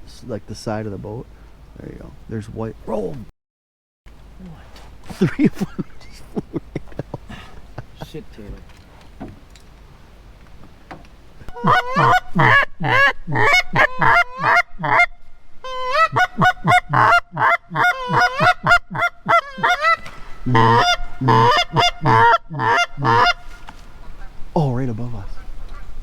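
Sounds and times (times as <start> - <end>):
geese honking: 11.4 - 26.0.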